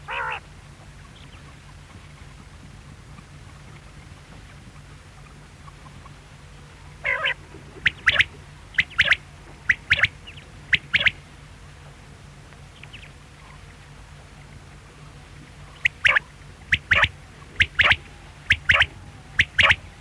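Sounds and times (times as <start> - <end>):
quail calling: 0.0 - 0.4, 7.0 - 11.2, 15.7 - 20.0.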